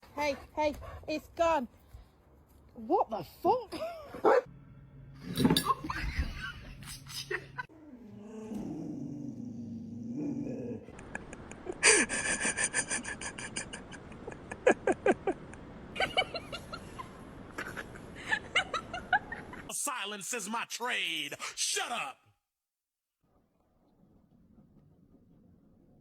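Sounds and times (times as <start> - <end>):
dog grumbling: 7.8 - 11.0.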